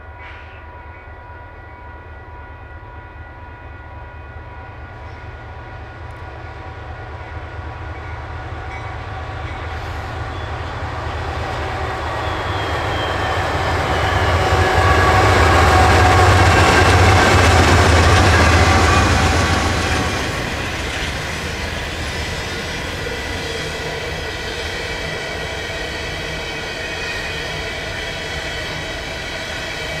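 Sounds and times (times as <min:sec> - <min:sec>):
diesel locomotive engine rumble: 0:01.9 - 0:30.0.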